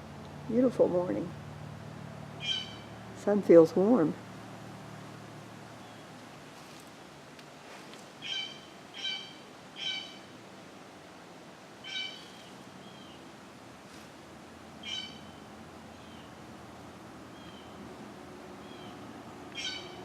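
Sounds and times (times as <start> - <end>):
outdoor background noise: 0.0 - 20.0
short pitched animal calls: 2.4 - 3.0, 8.2 - 10.3, 11.8 - 12.5, 14.8 - 15.4, 19.6 - 20.0.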